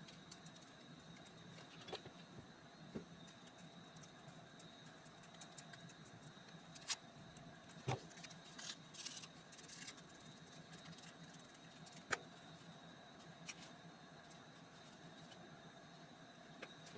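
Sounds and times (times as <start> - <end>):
paper rustle: 7.7 - 12.1.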